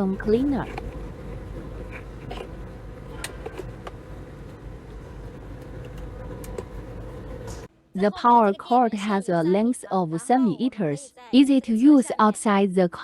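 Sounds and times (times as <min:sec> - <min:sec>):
steady mechanical hum: 0:00.0 - 0:09.7.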